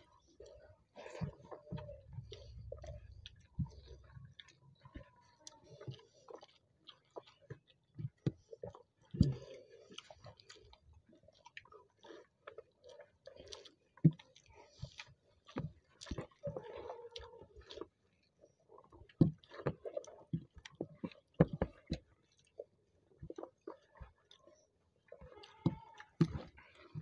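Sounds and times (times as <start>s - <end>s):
chewing and mouth smacking: 0.0s - 27.0s.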